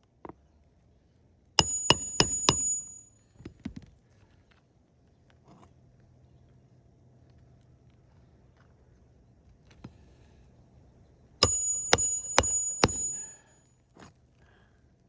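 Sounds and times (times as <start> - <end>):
hammer blows on nail: 1.6 - 3.0, 11.4 - 13.4
light hammer taps: 1.6 - 3.1, 11.4 - 13.4.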